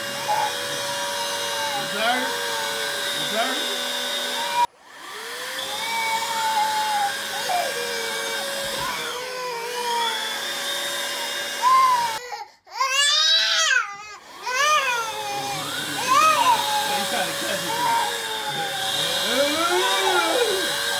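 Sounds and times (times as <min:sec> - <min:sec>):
vacuum cleaner whining: 0:00.0 - 0:12.3, 0:13.2 - 0:20.9
small child crying: 0:00.1 - 0:02.7, 0:05.7 - 0:10.4, 0:11.6 - 0:18.8, 0:19.4 - 0:20.8.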